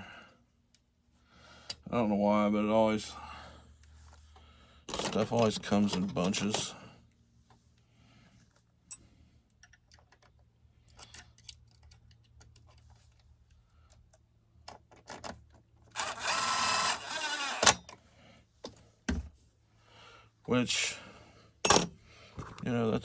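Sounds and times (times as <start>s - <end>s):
tool parts clicking: 4.9s - 6.7s, 14.9s - 18.0s
small motor tool whirring: 15.9s - 17.8s.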